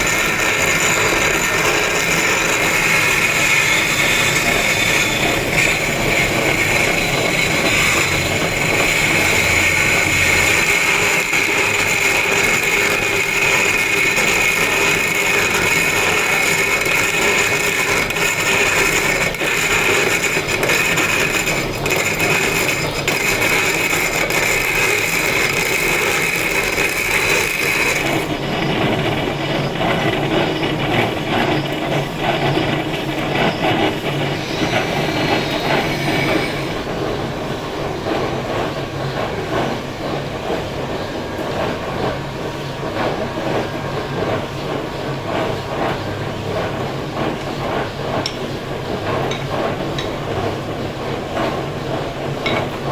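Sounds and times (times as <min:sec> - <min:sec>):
power tool high whine: 0:00.0 - 0:28.3, 0:33.6 - 0:37.1
rumbling grinding scrape: 0:00.0 - 0:29.2, 0:29.9 - 0:37.4.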